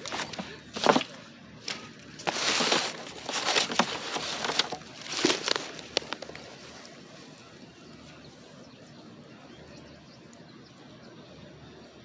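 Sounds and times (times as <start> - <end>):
objects clicking: 0.0 - 7.0
rustling scrape: 0.0 - 7.6.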